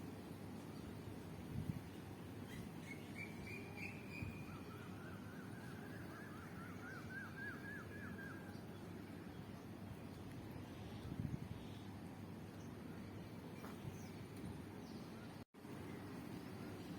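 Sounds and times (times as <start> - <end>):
bird chirping: 2.5 - 9.7.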